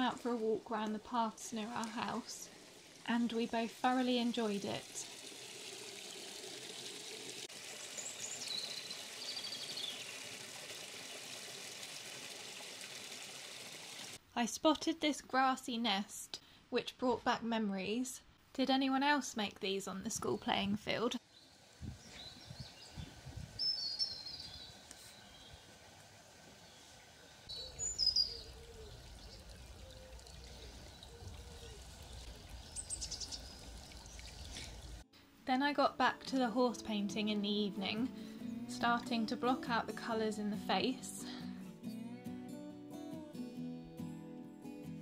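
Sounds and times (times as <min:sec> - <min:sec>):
wild birds chirping: 0:06.0 - 0:10.4, 0:21.2 - 0:35.0
songbird calling with trill: 0:08.0 - 0:10.1, 0:21.3 - 0:25.6, 0:27.5 - 0:34.5.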